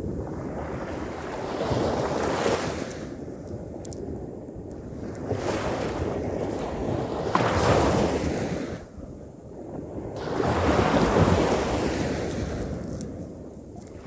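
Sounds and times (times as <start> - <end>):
wind buffeting microphone: 0.0 - 14.0
ocean waves breaking: 10.2 - 13.1.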